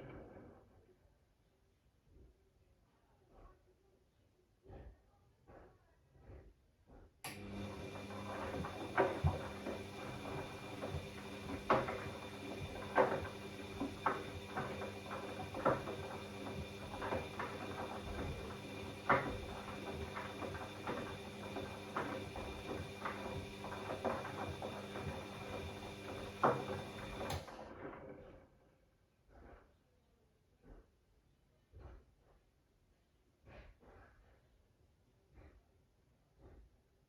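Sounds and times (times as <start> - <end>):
washing machine motor humming: 7.3 - 27.5.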